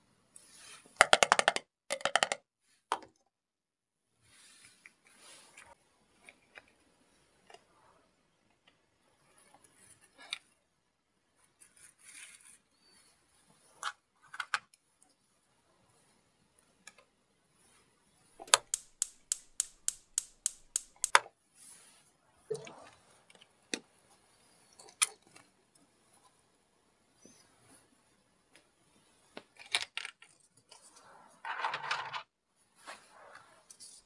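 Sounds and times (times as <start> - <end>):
plastic toy pieces tapping: 1.0 - 2.4, 18.4 - 21.2
toy buttons clicking: 18.5 - 21.2.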